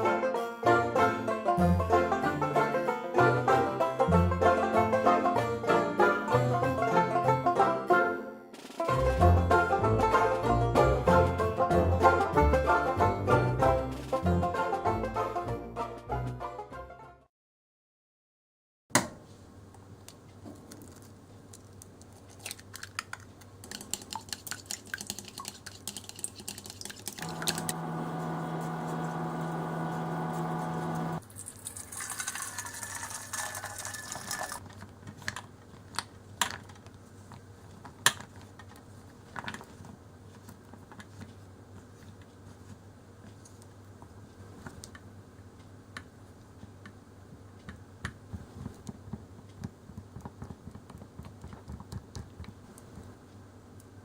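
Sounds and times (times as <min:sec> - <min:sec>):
utensils clicking and tapping: 0:22.1 - 0:27.8
steady electric hum: 0:27.2 - 0:32.4.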